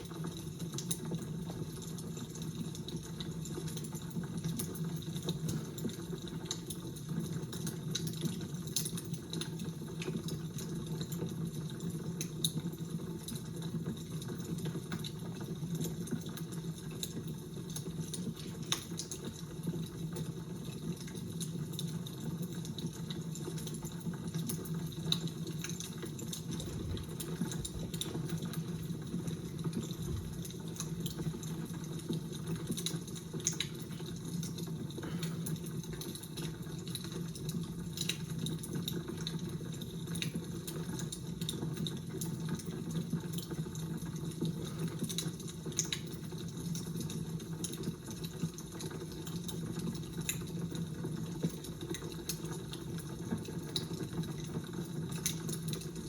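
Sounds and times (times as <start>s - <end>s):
fire crackling and popping: 0.0s - 56.0s.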